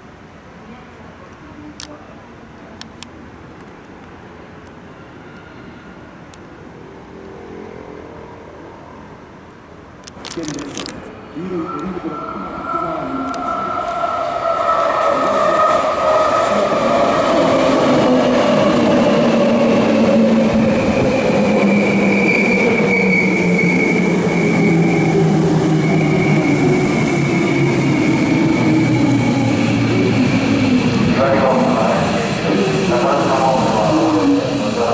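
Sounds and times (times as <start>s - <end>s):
high squeal: 11.6s - 17.4s, 20.6s - 31.1s.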